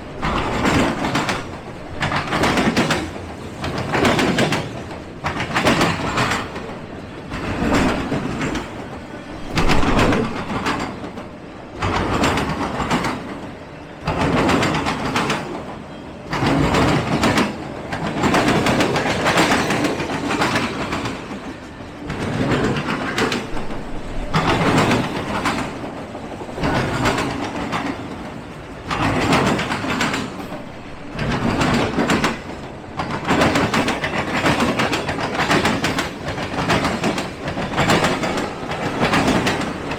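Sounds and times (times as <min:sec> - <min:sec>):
train wheels clattering over rail joints: 0:00.0 - 0:39.9.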